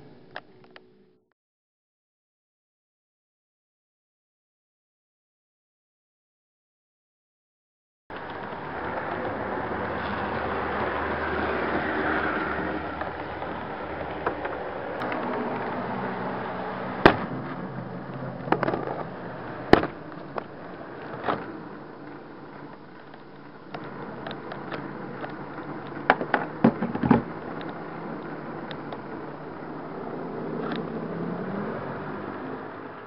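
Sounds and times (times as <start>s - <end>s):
track clicks and knocks: 13.0s - 15.8s, 22.6s - 29.0s.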